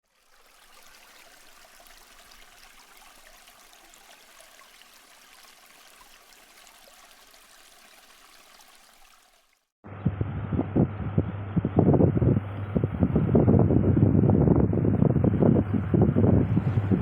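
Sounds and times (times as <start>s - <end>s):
faint running water: 0.0s - 9.8s, 14.4s - 17.0s.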